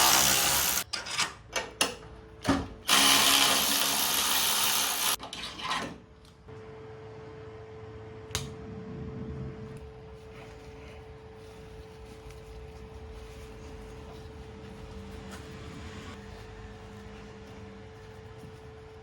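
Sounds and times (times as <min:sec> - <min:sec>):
power tool running in bursts: 0:00.0 - 0:00.8, 0:02.9 - 0:05.2.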